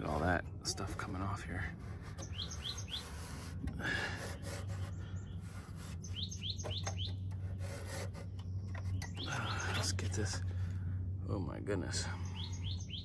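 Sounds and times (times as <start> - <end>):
fingers scraping grime off coil: 0.0 - 10.4
steady low hum: 0.0 - 13.0
small bird chirping: 2.0 - 3.5, 4.2 - 10.5, 12.0 - 13.0.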